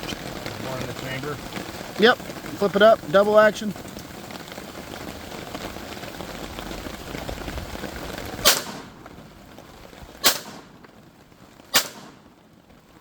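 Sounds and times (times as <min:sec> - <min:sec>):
rain falling: 0:00.0 - 0:13.0
pistol shots: 0:08.4 - 0:09.0, 0:10.2 - 0:10.7, 0:11.7 - 0:12.2.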